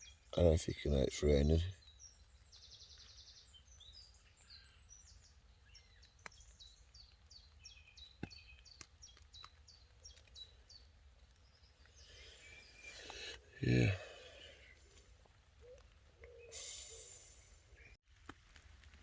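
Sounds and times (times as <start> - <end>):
faint woodland birdsong: 0.0 - 19.0
raindrops tapping on tent fabric: 5.7 - 12.0, 18.0 - 19.0.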